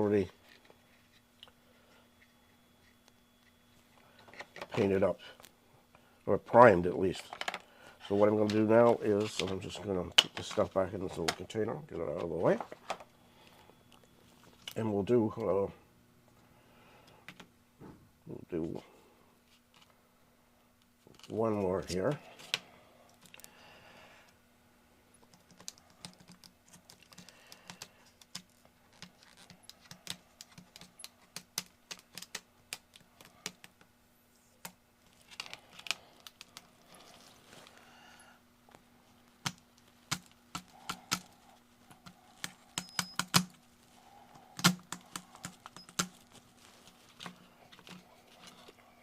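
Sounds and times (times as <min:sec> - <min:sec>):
faint steady hum: 0:00.0 - 0:49.0
plastic parts clicking and tapping: 0:07.3 - 0:07.6, 0:25.2 - 0:33.9, 0:41.9 - 0:43.6, 0:44.6 - 0:46.4.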